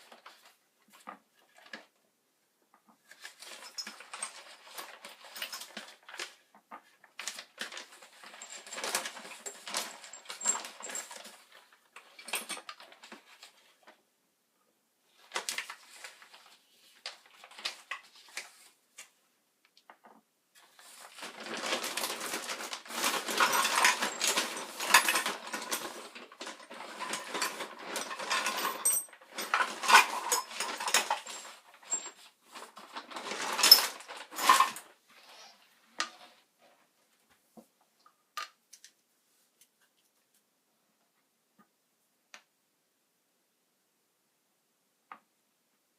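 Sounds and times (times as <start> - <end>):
scraping and rustling: 20.6 - 37.7.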